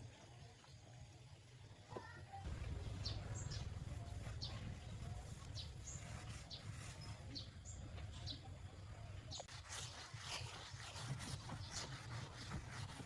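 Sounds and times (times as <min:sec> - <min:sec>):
faint low rumble: 0:02.4 - 0:09.5
small birds chirping: 0:02.5 - 0:08.5.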